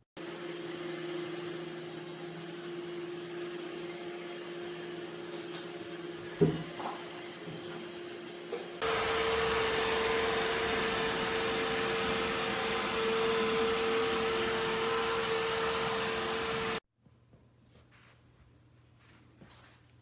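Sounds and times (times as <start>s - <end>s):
robot vacuum suction motor: 8.8s - 16.8s.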